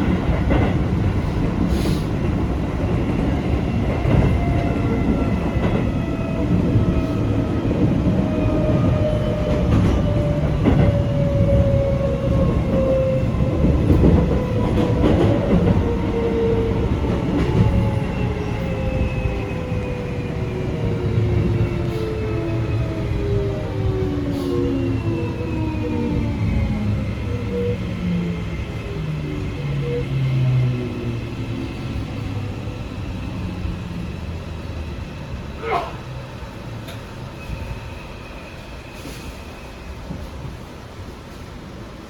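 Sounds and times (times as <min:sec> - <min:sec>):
train running rumble: 0:00.0 - 0:37.7
rail-joint clicks: 0:36.8 - 0:37.6.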